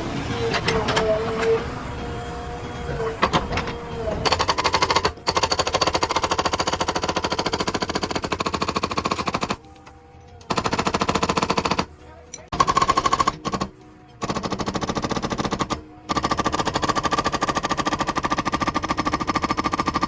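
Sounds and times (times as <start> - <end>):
rapid mechanical hammering: 3.2 - 9.7, 10.4 - 11.9, 12.5 - 20.0.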